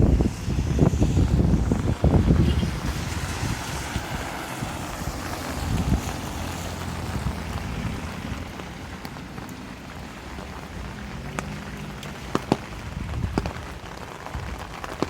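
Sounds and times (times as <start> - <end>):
steady rain: 0.0 - 15.0
wind buffeting microphone: 0.0 - 15.0.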